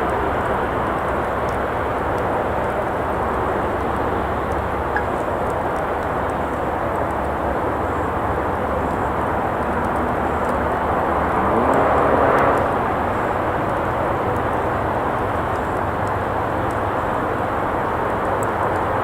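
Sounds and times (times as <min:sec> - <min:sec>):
campfire crackling: 0:00.0 - 0:19.0
traffic hum: 0:00.0 - 0:19.0
vehicle passing: 0:09.1 - 0:14.9.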